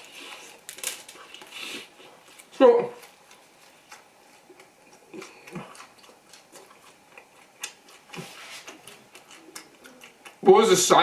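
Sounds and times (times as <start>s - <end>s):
chewing mouth clicks and smacks: 3.0s - 10.5s.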